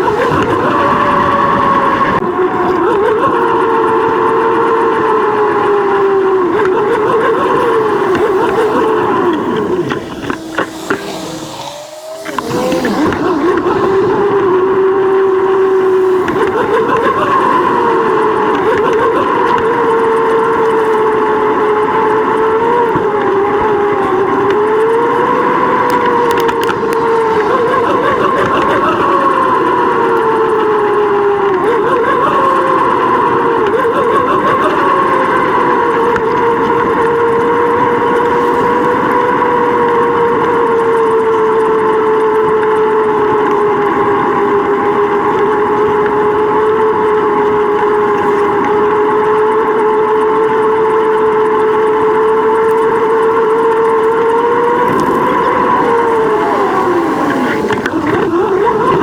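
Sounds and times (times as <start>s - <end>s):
bicycle riding whine: 0.0s - 59.0s
rough rumble: 3.6s - 33.7s, 52.5s - 59.0s.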